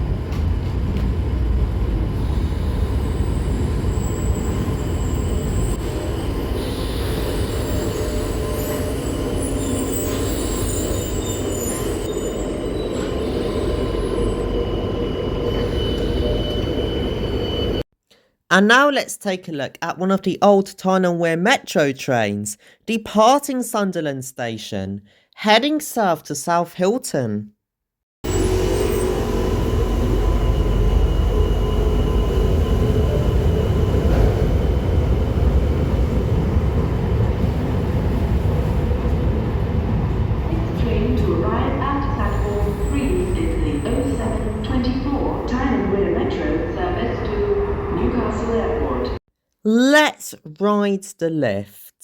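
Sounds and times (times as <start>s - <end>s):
train heavy rumble: 0.0s - 17.8s
train rumbling: 0.0s - 17.8s, 28.2s - 49.2s
high squeal of train: 2.0s - 17.8s, 28.3s - 39.4s, 40.0s - 49.2s.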